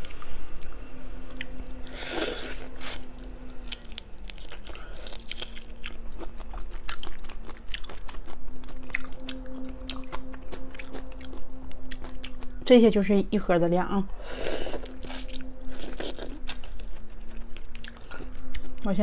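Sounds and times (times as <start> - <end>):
chewing shellfish with wet crunches: 3.6 - 12.5.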